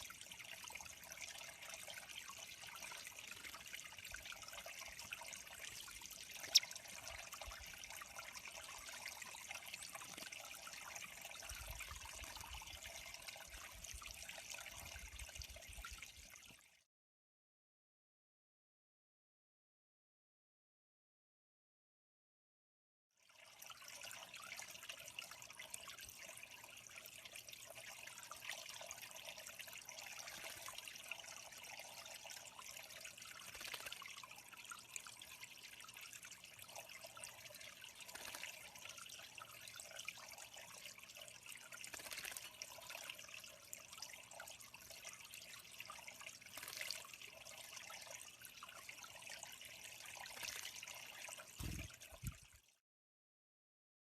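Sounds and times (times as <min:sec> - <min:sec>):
water trickling into pond: 0:00.0 - 0:16.9, 0:23.1 - 0:52.8
water splashes: 0:41.7 - 0:43.1, 0:50.1 - 0:52.6.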